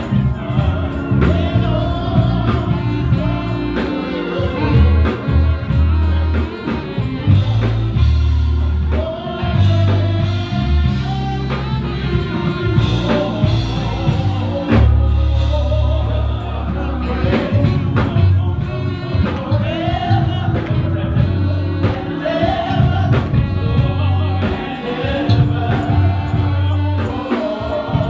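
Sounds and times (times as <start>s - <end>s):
bass line: 0.0s - 28.0s
drums playing: 0.0s - 28.0s
people singing gospel: 0.0s - 28.0s.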